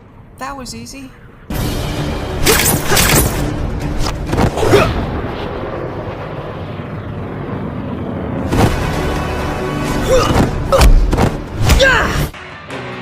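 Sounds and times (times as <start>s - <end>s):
long rumble: 3.5s - 11.6s.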